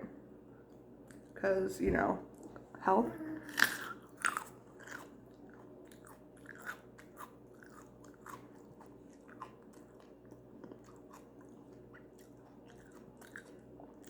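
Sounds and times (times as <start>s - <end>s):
chewing raw carrot crunches: 3.5s - 14.0s.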